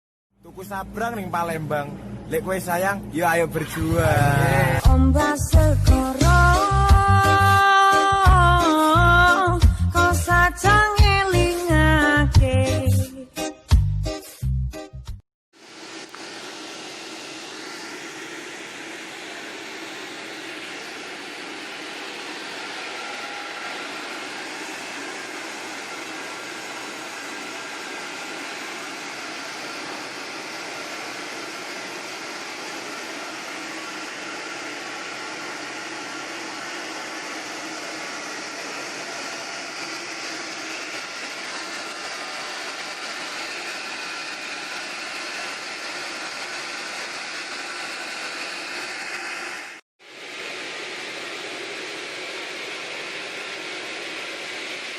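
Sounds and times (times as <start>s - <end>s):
sawmill saw cutting log: 15.7s - 49.8s.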